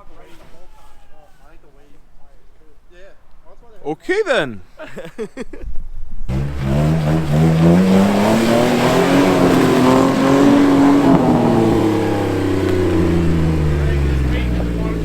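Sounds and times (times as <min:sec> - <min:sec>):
engine revving hard: 0:06.3 - 0:15.0.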